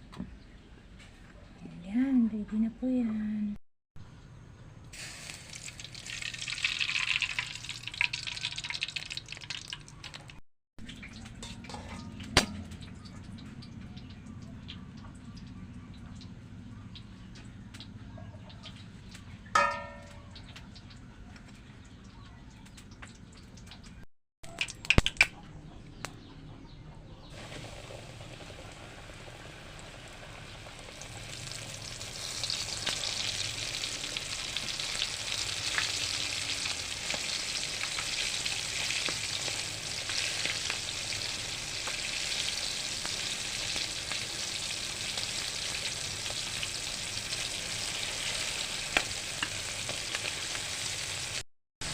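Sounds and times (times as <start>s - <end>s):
chicken sizzling in hot oil: 5.0s - 14.4s, 18.6s - 21.0s, 27.3s - 51.9s.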